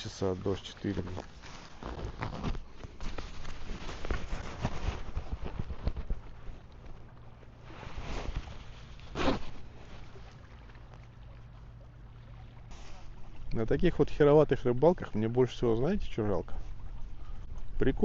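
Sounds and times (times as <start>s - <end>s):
rustling and clicking handling: 0.8s - 7.5s.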